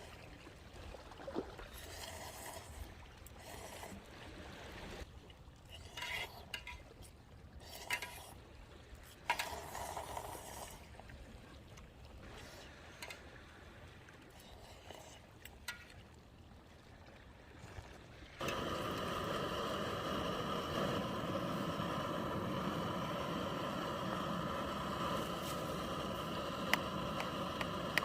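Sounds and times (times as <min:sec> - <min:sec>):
faint liquid trickling: 0:00.0 - 0:20.1.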